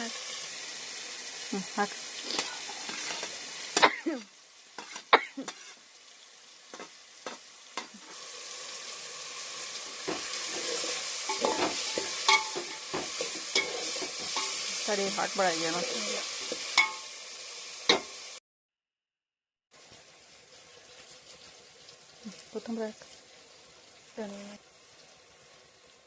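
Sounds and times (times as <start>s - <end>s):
food sizzling in a pot: 0.0s - 18.4s, 19.7s - 26.0s
utensil knocking and scraping pot: 10.0s - 14.8s.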